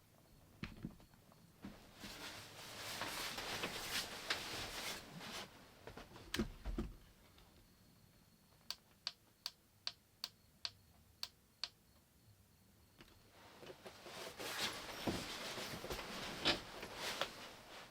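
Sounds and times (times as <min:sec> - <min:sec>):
rustling: 0:01.7 - 0:06.2, 0:13.3 - 0:17.9
sharp rhythmic clicks: 0:08.6 - 0:11.8.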